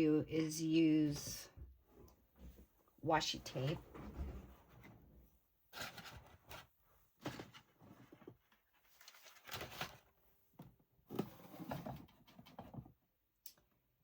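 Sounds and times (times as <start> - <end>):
craft supplies rustling and knocking: 5.8 - 10.0.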